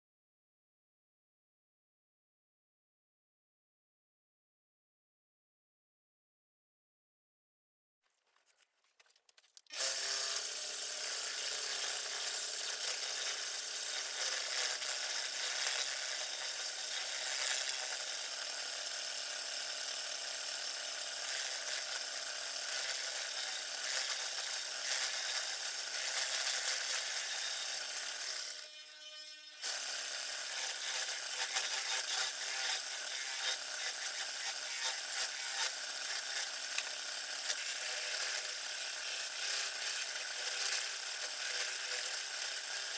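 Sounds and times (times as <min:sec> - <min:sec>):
turning tool cutting wood: 0:09.7 - 0:42.9.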